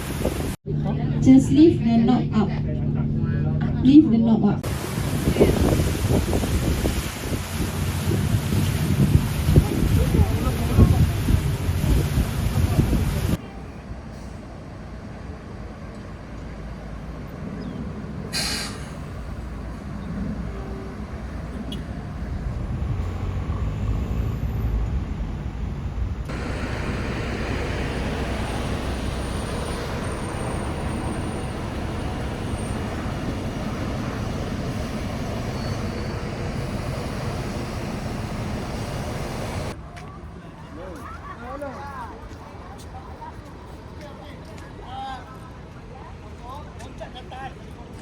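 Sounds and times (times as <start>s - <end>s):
rushing water: 0.0s - 0.6s, 4.6s - 13.8s, 18.2s - 39.8s
wind noise: 0.0s - 0.8s, 4.5s - 13.4s, 17.4s - 39.8s
boat engine running: 19.0s - 39.8s.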